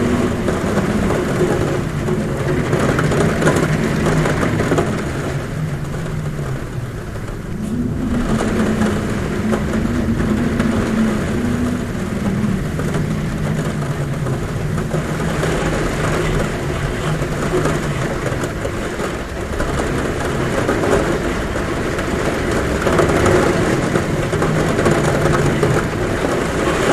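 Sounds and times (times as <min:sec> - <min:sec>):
heavy rain on a roof: 0:00.0 - 0:26.9
wind humming at a window: 0:00.0 - 0:26.9.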